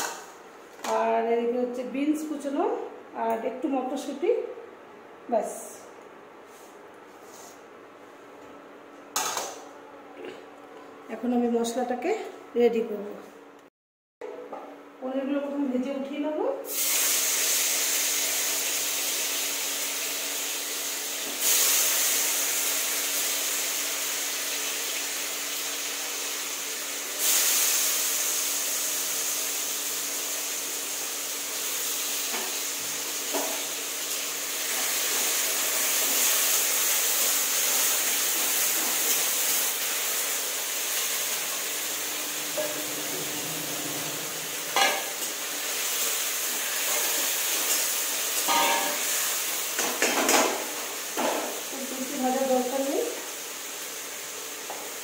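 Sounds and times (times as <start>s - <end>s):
food sizzling in hot oil: 16.7s - 55.0s.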